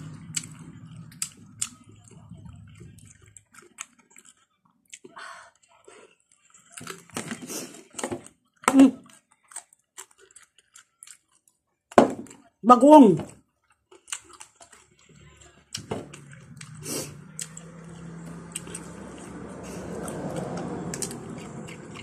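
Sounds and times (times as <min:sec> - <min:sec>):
low vehicle rumble: 0:00.0 - 0:03.3, 0:15.1 - 0:22.0
chewing and mouth clicks: 0:00.2 - 0:07.2, 0:09.0 - 0:11.6, 0:13.6 - 0:22.0.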